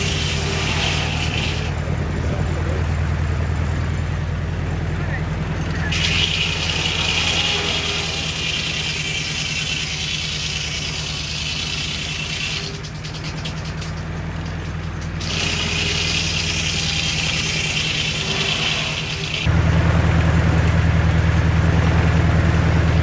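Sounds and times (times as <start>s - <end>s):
sawmill engine running: 0.0s - 23.0s.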